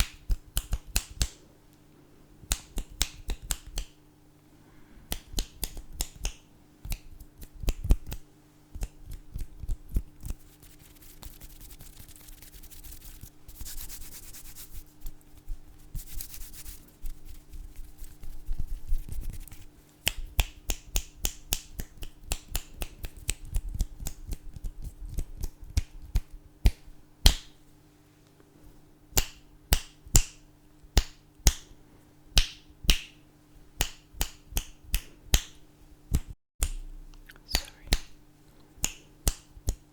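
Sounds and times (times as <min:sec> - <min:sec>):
fingers snapping: 0:00.0 - 0:01.4, 0:02.5 - 0:04.0, 0:05.1 - 0:10.4, 0:20.0 - 0:27.6, 0:29.2 - 0:30.4, 0:31.0 - 0:31.7, 0:32.4 - 0:33.2, 0:33.8 - 0:38.2, 0:38.8 - 0:39.9
faint steady hum: 0:00.0 - 0:39.9.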